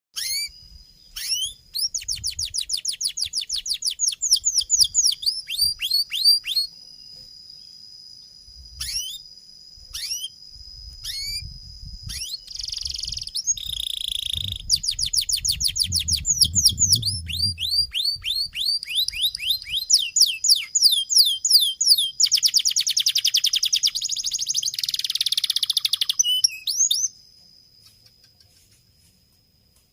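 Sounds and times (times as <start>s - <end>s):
canary singing: 0.2s - 6.8s, 8.8s - 9.3s, 9.9s - 10.4s, 11.0s - 11.5s, 12.1s - 27.2s.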